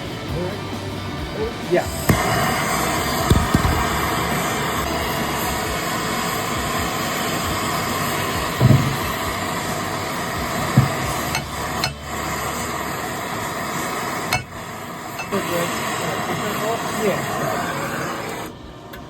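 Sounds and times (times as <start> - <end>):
steady hiss: 0.0 - 19.0
dull hammer blows on steel: 1.8 - 12.5.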